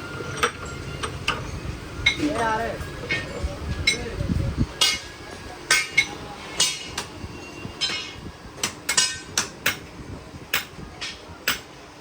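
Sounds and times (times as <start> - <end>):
hammer striking metal: 4.8 - 5.1, 5.7 - 7.1.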